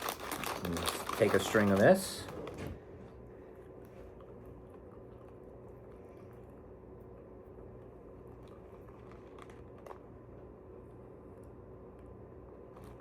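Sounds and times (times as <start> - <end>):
low room hum: 0.0 - 13.0
faint chewing: 3.6 - 10.5.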